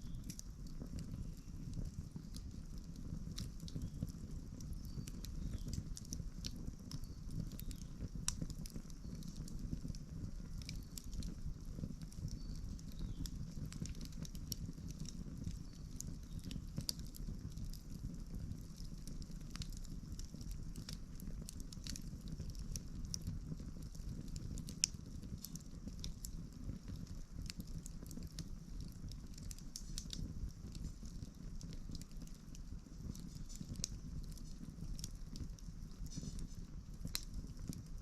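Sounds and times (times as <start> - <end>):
campfire crackling and snapping: 0.0 - 38.0
low steady fire rumble: 0.0 - 38.0
sharp pop of burning wood: 4.7 - 9.4, 29.3 - 32.2, 33.1 - 37.8.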